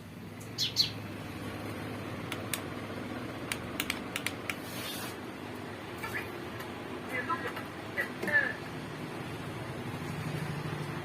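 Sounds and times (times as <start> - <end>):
bird chirping: 0.4 - 1.1
sharp clicks: 2.3 - 2.7, 3.4 - 4.6.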